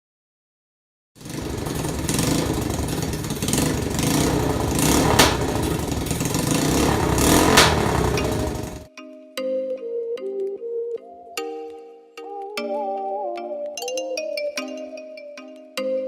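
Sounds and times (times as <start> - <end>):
small engine clattering: 1.2 - 8.9
sharp clacks: 1.6 - 8.9.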